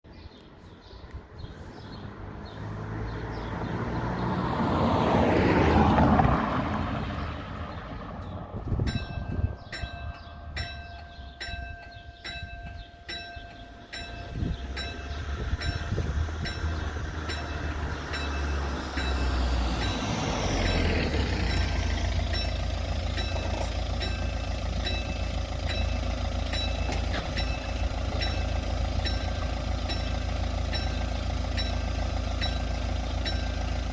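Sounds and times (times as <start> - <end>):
vehicle passing: 1.2 - 8.9, 14.3 - 23.9
steady low rumble: 7.6 - 33.6
electric crossing bells ringing: 7.7 - 33.9.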